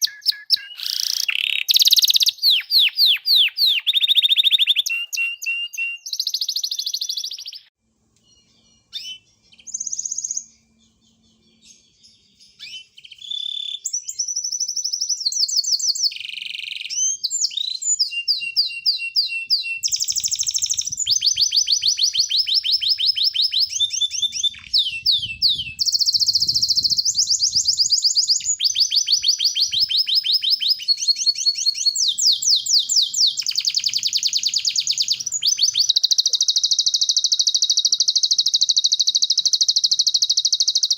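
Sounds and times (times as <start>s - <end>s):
songbird trills and rapid notes: 19.8s - 40.9s.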